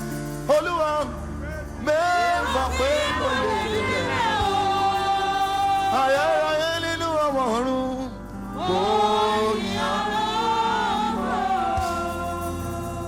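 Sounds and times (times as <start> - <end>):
backing music: 0.0 - 13.0
gospel singing: 0.0 - 13.0.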